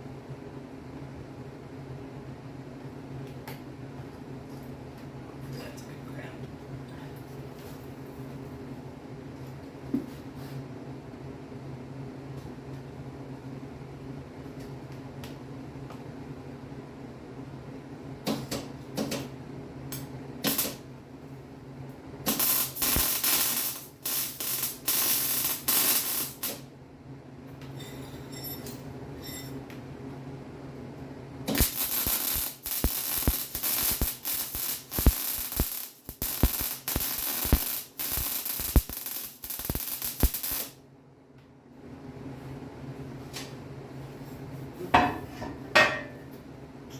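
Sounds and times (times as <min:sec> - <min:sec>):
arc welding crackle: 0:19.9 - 0:20.8, 0:22.3 - 0:26.7, 0:31.5 - 0:40.8.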